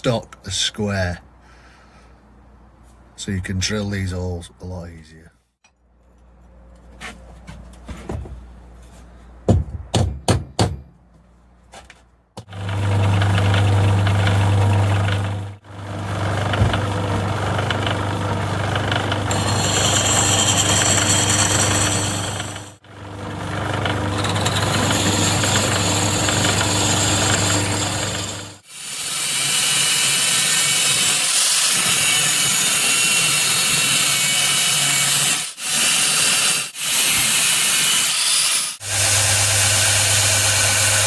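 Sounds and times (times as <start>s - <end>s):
sharp knocks: 9.5s - 10.9s
pillar drill motor humming: 12.5s - 28.6s.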